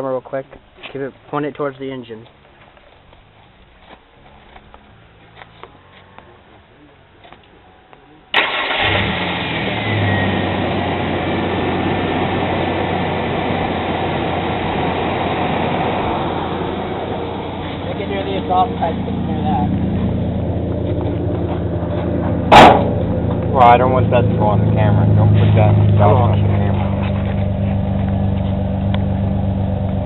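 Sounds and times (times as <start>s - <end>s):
pickup engine starting and idling: 8.3s - 30.0s.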